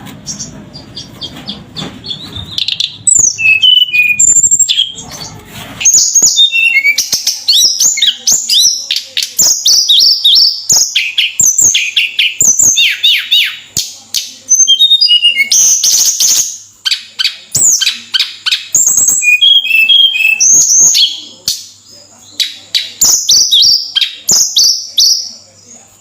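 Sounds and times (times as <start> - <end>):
bird singing chirps and whistles: 2.0 - 5.0, 5.8 - 13.6, 14.5 - 21.4, 22.4 - 25.4.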